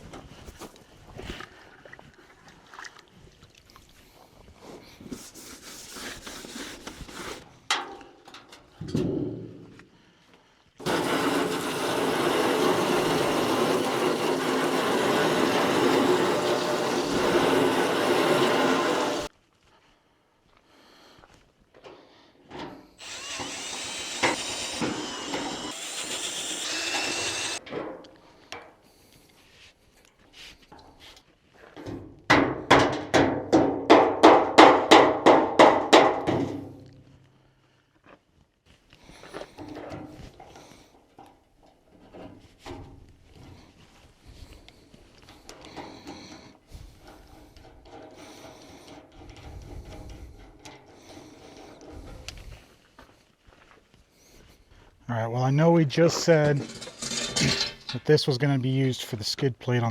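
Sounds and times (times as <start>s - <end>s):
motor-driven shop tool running: 10.8s - 19.3s, 23.0s - 27.6s.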